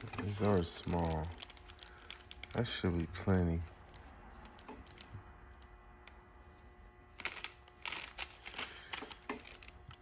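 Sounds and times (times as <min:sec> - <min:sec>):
small items rustling and clattering: 0:00.0 - 0:02.9, 0:06.5 - 0:10.0.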